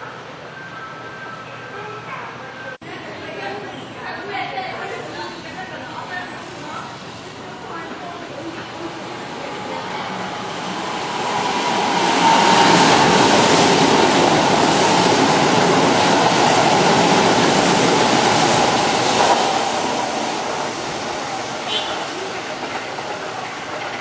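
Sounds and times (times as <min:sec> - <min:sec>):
electric train wheels rumbling: 0:05.5 - 0:24.0.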